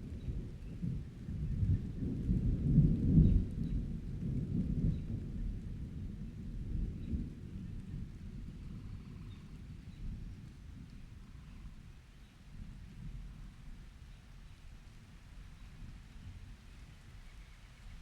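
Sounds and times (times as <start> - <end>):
rolling thunder: 0.0 - 11.8
light rain: 0.0 - 18.0.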